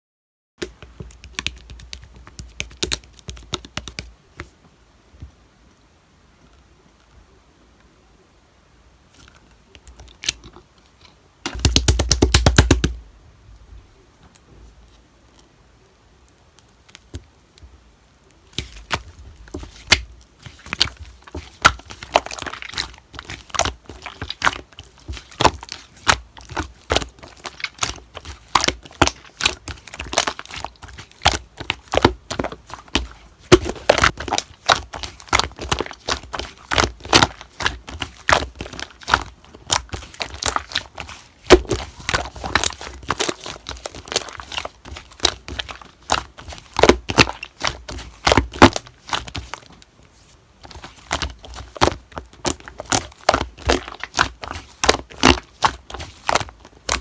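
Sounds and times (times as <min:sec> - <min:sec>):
slime crackling pops: 0:18.6 - 0:49.4, 0:51.1 - 0:57.0.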